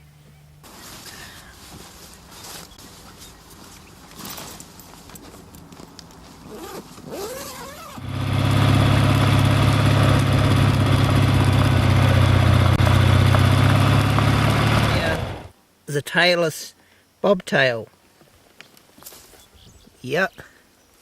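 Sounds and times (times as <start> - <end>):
engine idling: 8.0 - 15.5.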